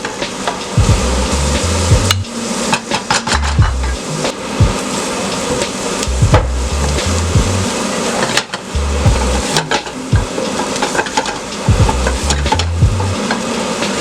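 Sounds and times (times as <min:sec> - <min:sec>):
steady hiss: 0:00.0 - 0:14.0
music with pulsing bass: 0:00.8 - 0:02.4, 0:03.3 - 0:04.8, 0:06.0 - 0:07.8, 0:08.7 - 0:10.4, 0:11.7 - 0:13.3.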